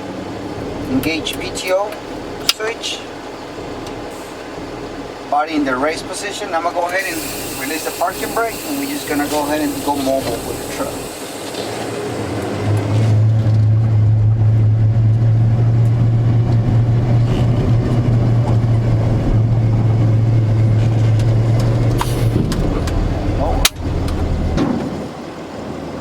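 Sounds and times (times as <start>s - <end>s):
diesel truck engine driving: 0.0s - 26.0s.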